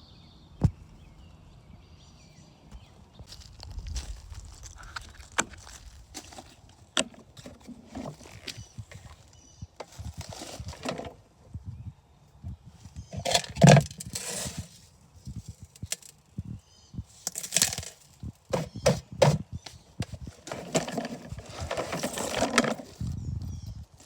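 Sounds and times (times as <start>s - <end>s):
scraping or rustling bursts: 13.2s - 15.7s, 20.0s - 23.2s.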